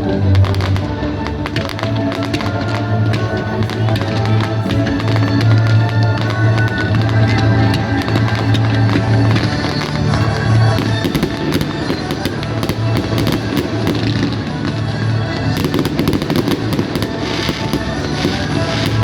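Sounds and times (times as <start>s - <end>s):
fireworks crackling and popping: 0.0s - 19.0s
loud music with steady bass: 0.0s - 19.0s.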